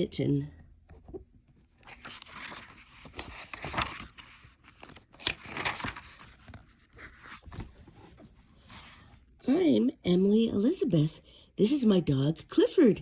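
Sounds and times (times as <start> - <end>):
paper pages rustling: 1.0 - 9.3.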